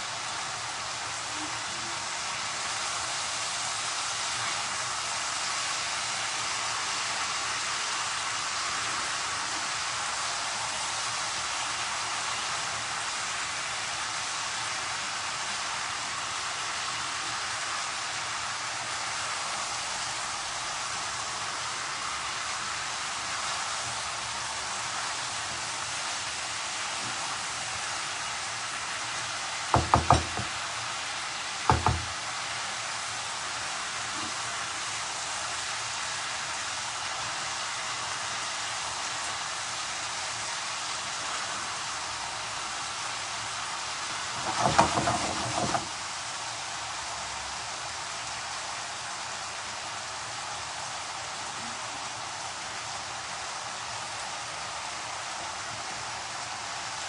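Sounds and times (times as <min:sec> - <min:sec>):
food sizzling in hot oil: 0:00.0 - 0:57.0
quick knocks: 0:29.8 - 0:30.5, 0:31.7 - 0:32.2, 0:44.4 - 0:45.9.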